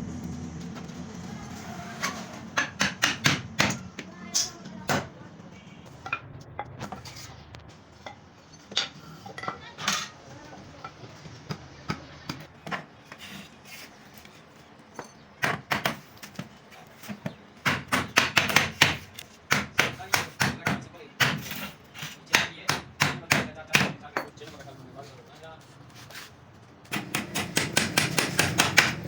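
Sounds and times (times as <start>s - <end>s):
hand tools knocking on wood: 2.5s - 4.1s, 17.1s - 24.4s, 26.9s - 29.0s.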